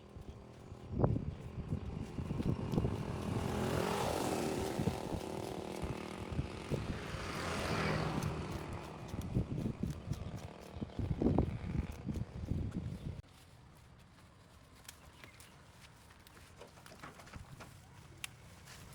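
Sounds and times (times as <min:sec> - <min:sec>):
vehicles passing by: 0:00.0 - 0:13.2.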